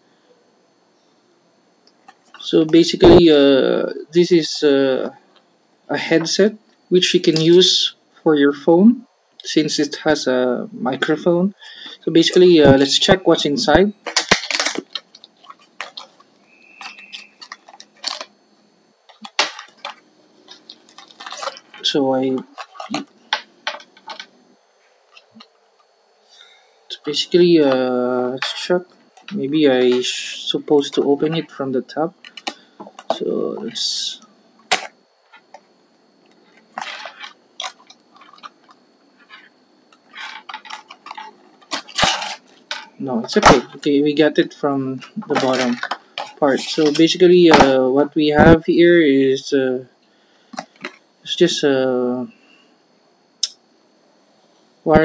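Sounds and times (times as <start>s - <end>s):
box clicks and rustles: 14.0s - 16.2s, 16.8s - 18.3s, 19.1s - 24.3s, 36.7s - 38.7s, 40.1s - 43.8s, 45.2s - 47.7s.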